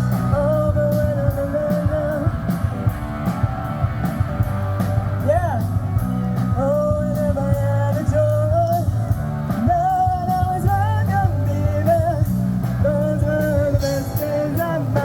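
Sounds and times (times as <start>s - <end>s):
rock band playing: 0.0s - 15.0s
singer holding long notes: 5.1s - 15.0s.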